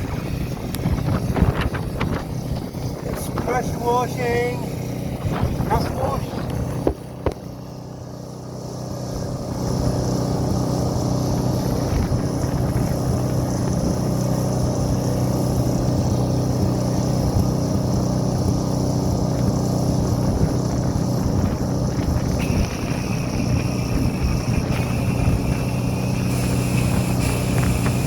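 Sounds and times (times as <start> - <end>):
pressure washer engine running: 0.0 - 28.0
high hiss: 22.2 - 28.0.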